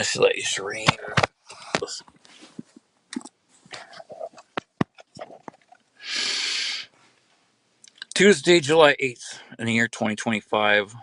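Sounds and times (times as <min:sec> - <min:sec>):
loud burst of hiss: 0:06.0 - 0:06.9.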